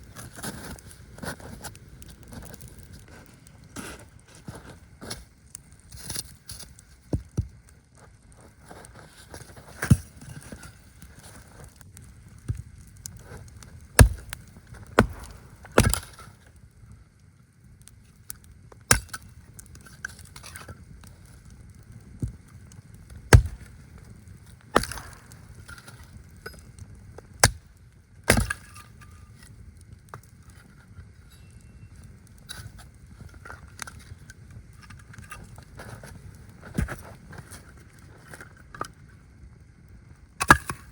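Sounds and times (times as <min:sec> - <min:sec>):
wood cracking and knocking: 0:14.0 - 0:16.2, 0:23.3 - 0:23.8, 0:24.7 - 0:26.6.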